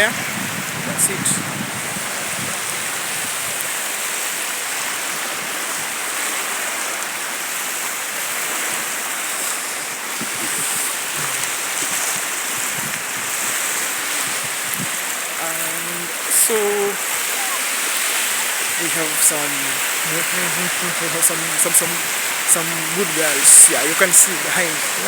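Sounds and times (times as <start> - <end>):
ocean surf washing on beach: 0.0 - 25.0.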